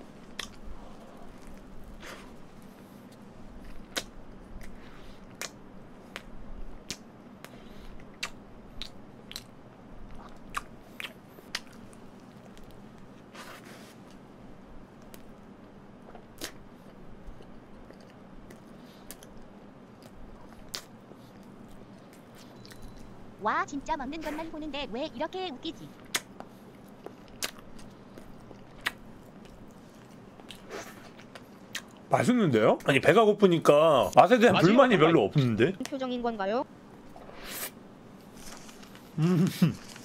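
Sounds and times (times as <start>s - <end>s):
person chewing: 0.2s - 6.3s, 7.8s - 13.1s, 16.1s - 23.1s, 26.0s - 32.1s
lip smacks: 0.3s - 0.6s, 3.7s - 9.5s, 16.1s - 16.6s, 26.0s - 29.8s
wet mouth clicks: 8.0s - 9.5s, 26.1s - 26.4s.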